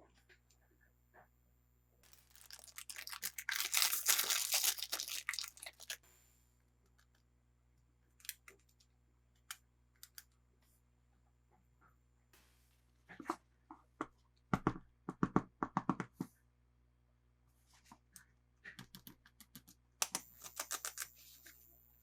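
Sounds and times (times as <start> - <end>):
packaging tearing and crinkling: 2.1 - 6.0.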